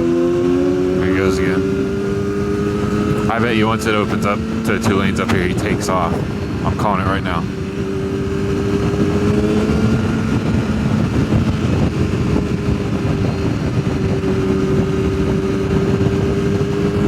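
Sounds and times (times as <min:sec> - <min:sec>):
motorcycle engine cruising: 0:00.0 - 0:17.0
wind noise rushing: 0:00.0 - 0:17.0.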